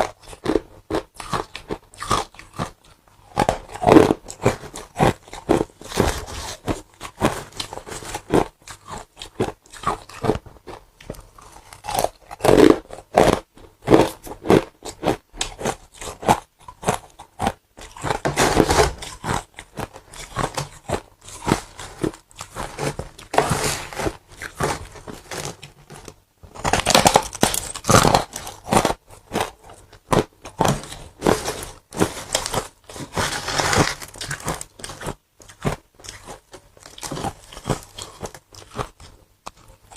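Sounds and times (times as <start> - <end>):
person crunching ice: 11.3 - 39.2.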